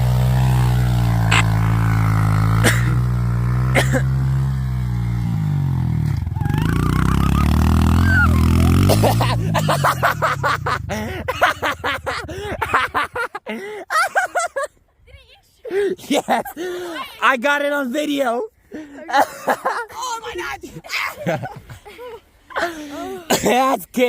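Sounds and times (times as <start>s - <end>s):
dirt bike engine idling and revving: 0.0s - 13.2s.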